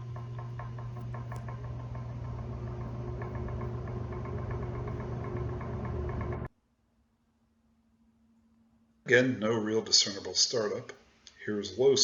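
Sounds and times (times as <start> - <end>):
box fan motor humming: 0.0 - 6.5
fan rapid ticking: 0.0 - 6.5.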